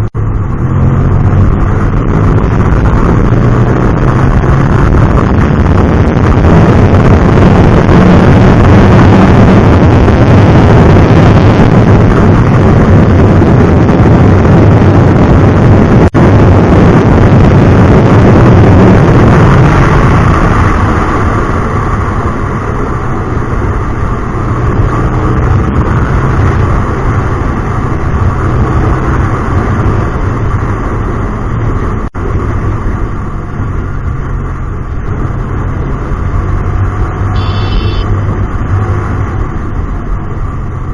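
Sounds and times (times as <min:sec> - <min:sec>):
traffic noise rush: 0:00.0 - 0:40.9
motorcycle engine running loud: 0:32.1 - 0:40.9.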